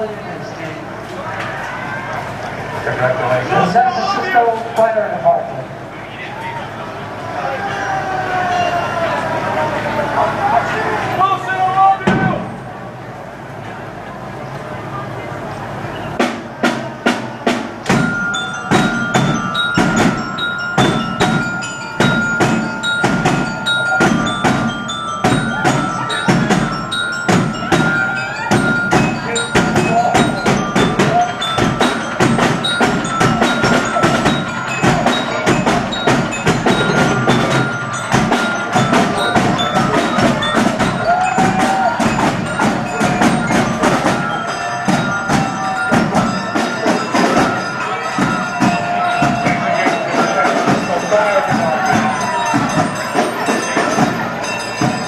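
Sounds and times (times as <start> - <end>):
sharp percussion strikes: 16.1 - 55.0
held high note: 17.3 - 55.0.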